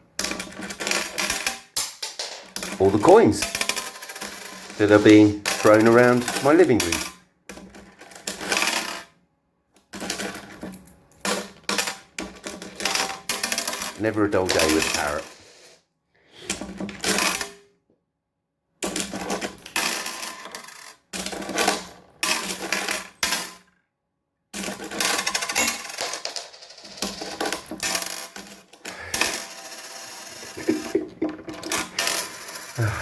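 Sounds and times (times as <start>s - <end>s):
metal coins clinking and scattering: 0.2s - 7.2s, 10.0s - 15.8s, 24.6s - 33.0s.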